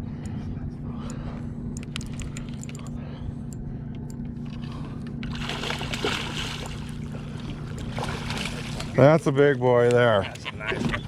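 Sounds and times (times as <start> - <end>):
electric trolling motor hum: 0.0 - 11.0
fish splashing at water surface: 4.6 - 9.0.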